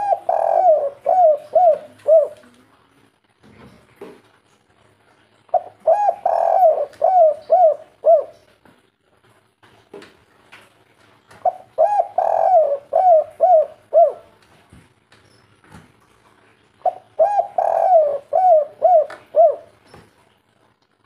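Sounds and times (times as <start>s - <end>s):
dove cooing: 0.0s - 2.6s, 5.5s - 8.5s, 11.4s - 14.4s, 16.8s - 19.9s.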